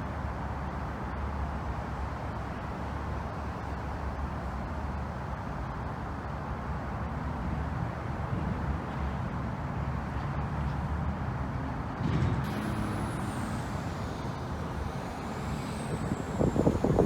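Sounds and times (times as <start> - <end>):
vehicle rumbling: 12.0 - 17.0
faint high whine: 12.4 - 17.0.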